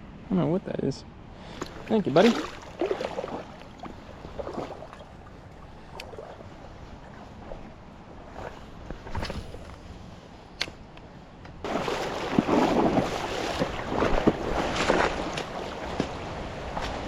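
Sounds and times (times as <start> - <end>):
creek water splashing: 1.4 - 9.3, 11.6 - 17.0.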